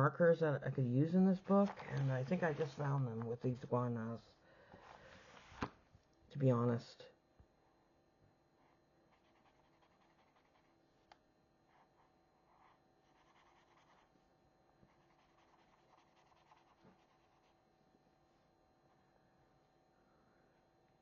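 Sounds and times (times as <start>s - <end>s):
marker scratching on paper: 1.6s - 3.0s, 8.6s - 10.8s, 11.7s - 14.1s, 14.9s - 17.6s.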